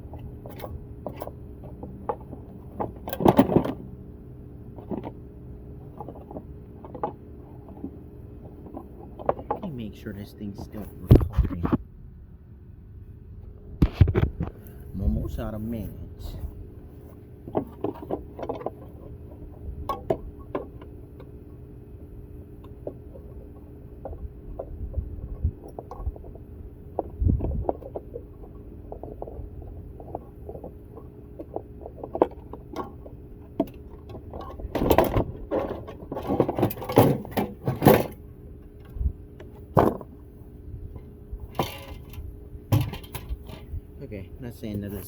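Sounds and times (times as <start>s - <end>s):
steady low hum: 0.0s - 45.0s
metal parts and tools clanking: 22.6s - 40.2s, 40.9s - 43.8s.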